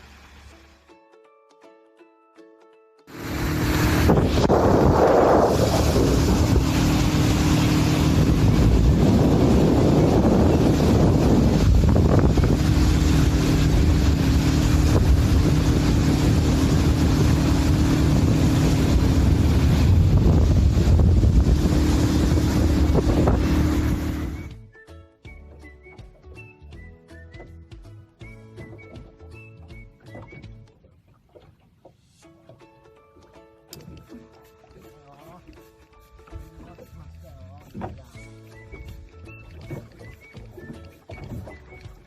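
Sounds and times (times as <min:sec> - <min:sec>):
boat engine running: 0:03.1 - 0:24.6, 0:28.6 - 0:32.6, 0:33.7 - 0:42.0
wind buffeting microphone: 0:03.2 - 0:24.5.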